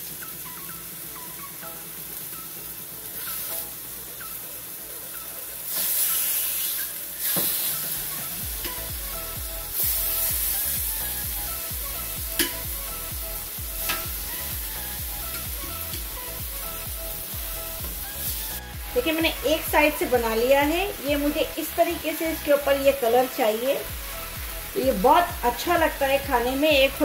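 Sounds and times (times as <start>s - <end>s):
chicken sizzling in hot oil: 0.0s - 27.0s.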